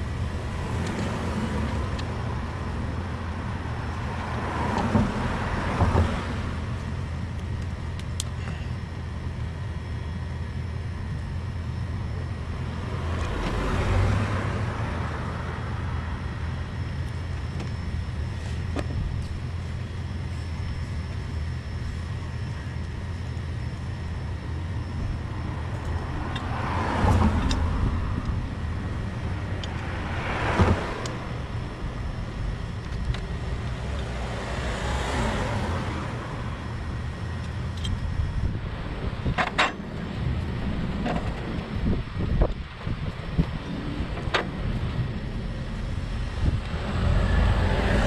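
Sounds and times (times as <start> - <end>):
vehicles passing on road: 0.0 - 48.0
low rumble: 35.5 - 48.0.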